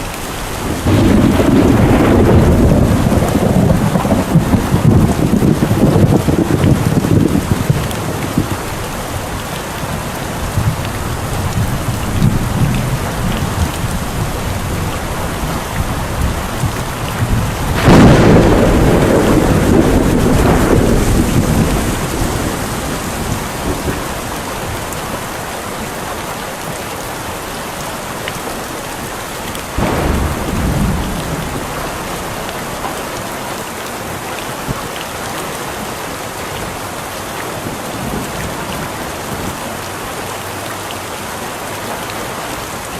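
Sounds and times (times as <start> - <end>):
thunder rumbling: 0.0 - 25.3, 29.8 - 33.4
heavy rain falling: 0.0 - 42.9.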